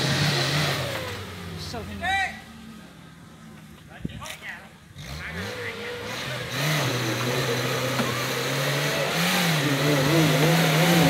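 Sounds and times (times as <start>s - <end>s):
engine running hard under load: 5.0s - 11.0s.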